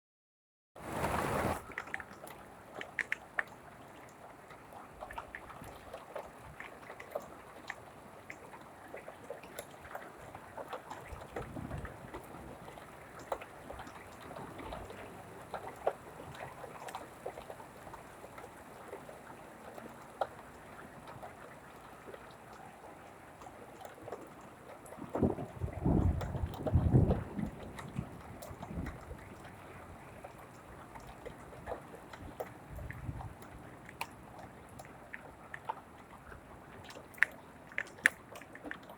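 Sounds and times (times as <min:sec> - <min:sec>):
rain falling: 0:24.8 - 0:31.2.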